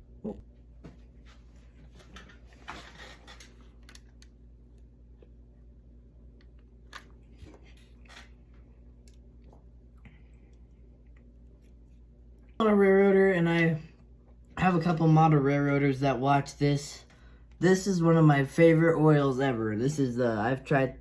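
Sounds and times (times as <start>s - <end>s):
steady low hum: 0.0s - 21.0s
small parts clicking and scraping: 6.9s - 8.5s.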